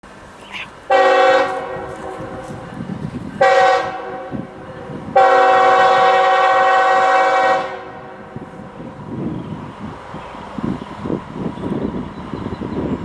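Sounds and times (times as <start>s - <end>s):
locomotive air horn: 0.9s - 2.6s, 3.4s - 8.3s.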